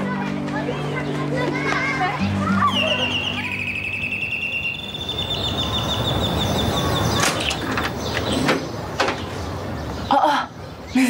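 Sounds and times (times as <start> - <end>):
birds trilling: 2.1 - 11.0
higher bird trill: 2.2 - 8.5.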